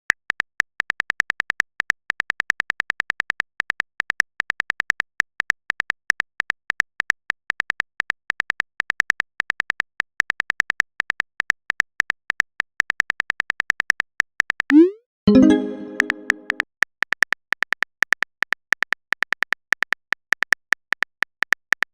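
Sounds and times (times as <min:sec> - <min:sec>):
keyboard typing clicks: 0:14.7 - 0:16.6.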